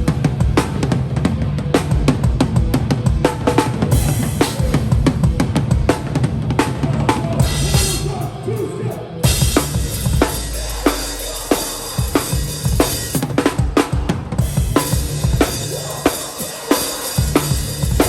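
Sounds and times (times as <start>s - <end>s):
band droning: 0.0s - 18.0s
cymbal wash: 9.3s - 13.4s.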